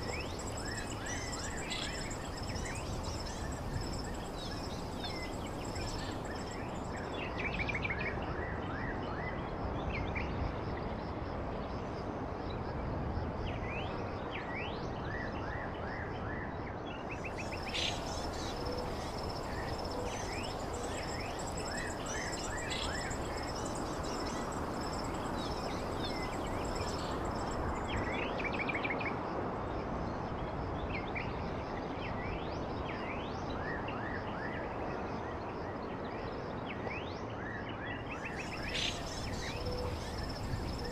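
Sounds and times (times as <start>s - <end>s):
small birds chirping: 0.0s - 7.1s, 17.3s - 28.2s
background hiss: 0.0s - 7.2s, 17.2s - 28.4s, 38.2s - 40.9s.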